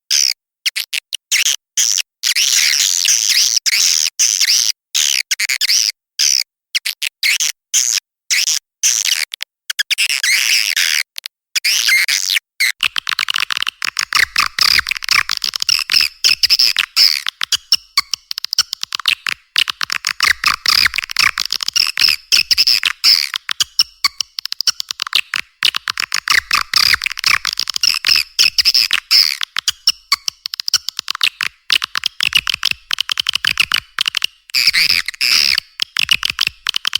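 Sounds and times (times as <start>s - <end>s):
swiftlet chirps and twitters: 12.8s - 36.9s.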